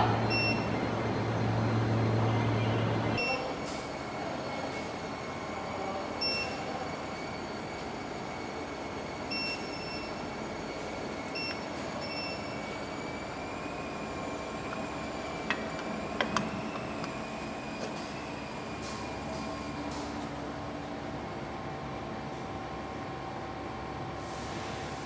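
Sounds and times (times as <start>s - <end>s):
short beeps: 0.0s - 0.9s
furnace hum and whine: 0.0s - 25.0s.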